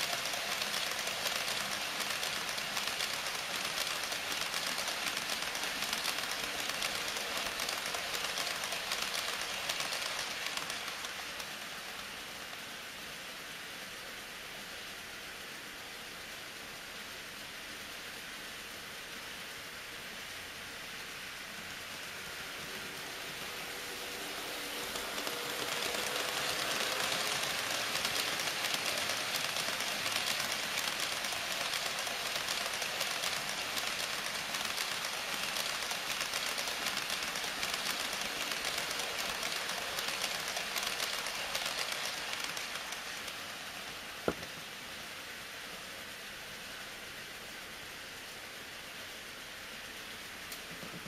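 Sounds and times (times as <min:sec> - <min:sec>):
model train wheels rattling: 0:00.0 - 0:12.6, 0:22.2 - 0:44.7.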